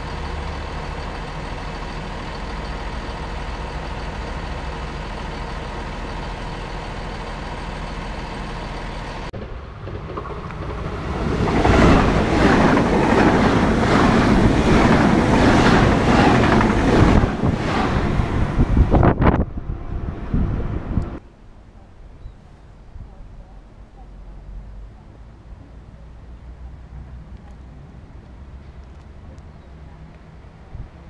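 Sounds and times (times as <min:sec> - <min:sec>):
wheels clattering over rails: 0:00.0 - 0:19.4
high-speed train rushing past: 0:00.0 - 0:21.2
railcar engine idling: 0:00.0 - 0:21.2.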